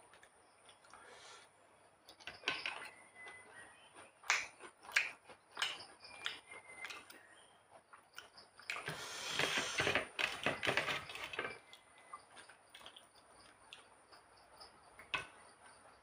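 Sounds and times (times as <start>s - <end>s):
mouth chewing: 3.2s - 9.9s.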